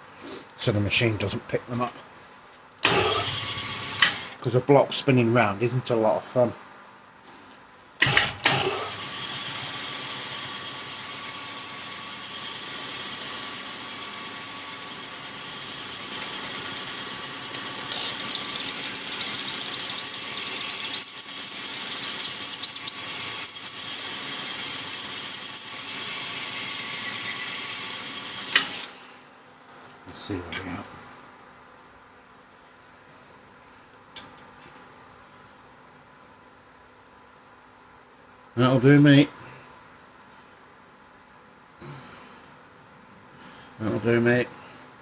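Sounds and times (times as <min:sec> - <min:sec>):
honing machine squealing and grinding: 0:02.8 - 0:04.3, 0:08.5 - 0:28.8.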